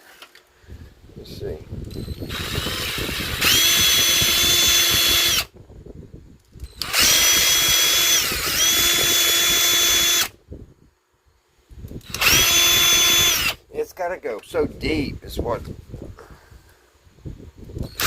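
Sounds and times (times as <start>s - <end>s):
electric drill whining: 1.8s - 5.6s, 6.6s - 10.4s, 12.0s - 13.6s, 17.8s - 18.0s.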